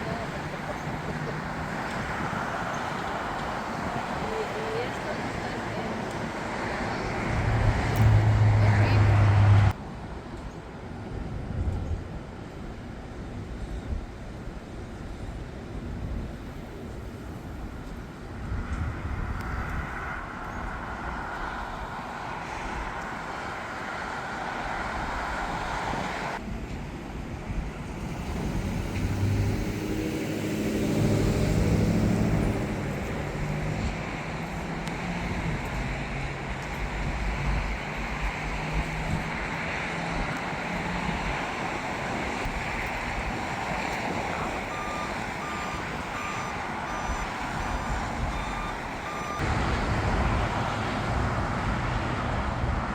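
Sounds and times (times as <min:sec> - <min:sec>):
short reversing beeps: 0:44.7 - 0:49.4.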